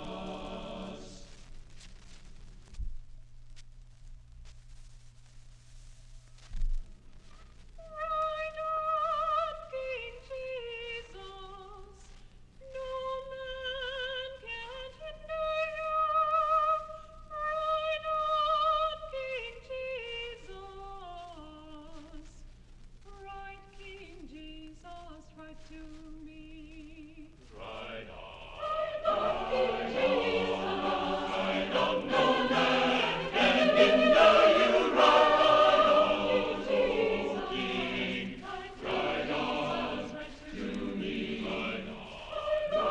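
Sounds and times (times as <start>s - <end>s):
choir singing: 0.0s - 1.3s, 27.5s - 42.9s
solo voice singing with vibrato: 23.1s - 42.9s.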